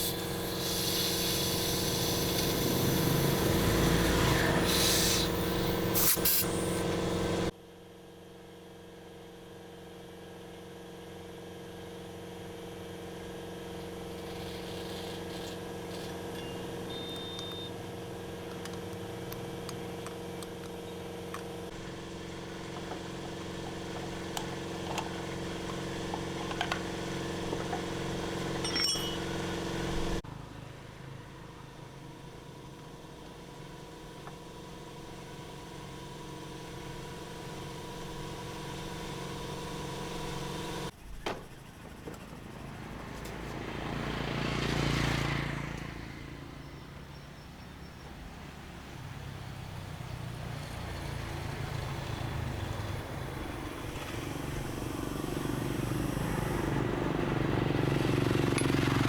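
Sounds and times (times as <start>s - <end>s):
motor humming: 0.0s - 7.5s, 33.2s - 46.0s.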